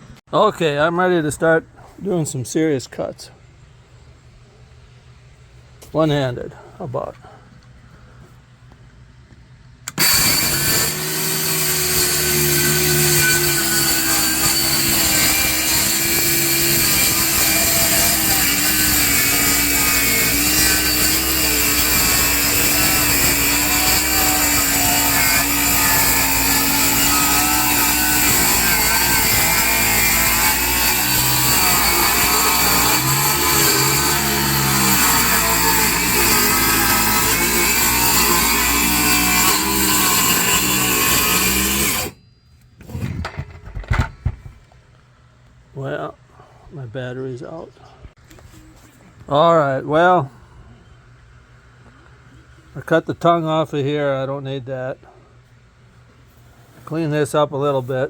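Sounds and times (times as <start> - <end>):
power saw cutting board: 9.9 - 42.2.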